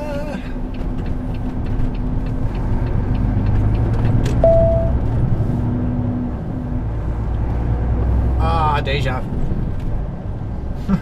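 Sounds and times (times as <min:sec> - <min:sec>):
truck engine and road noise: 0:00.0 - 0:11.0
short beep: 0:04.4 - 0:05.0.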